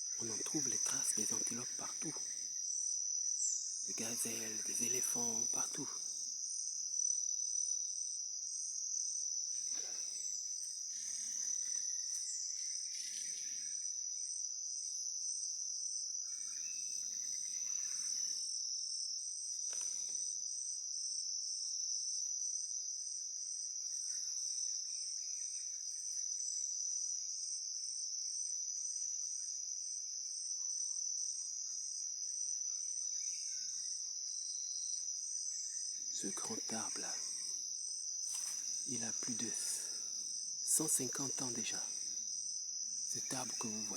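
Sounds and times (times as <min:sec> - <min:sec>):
high-pitched insect drone: 0:00.0 - 0:20.5, 0:30.6 - 0:43.9
pulsing insect trill: 0:00.0 - 0:43.9.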